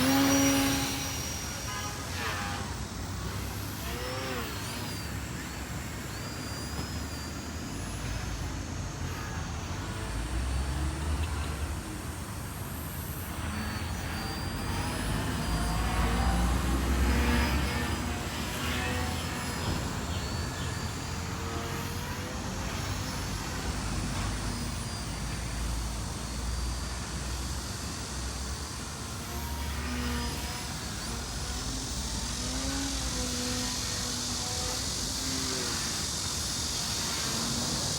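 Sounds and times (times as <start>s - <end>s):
model plane motor whining: 0.0s - 37.9s.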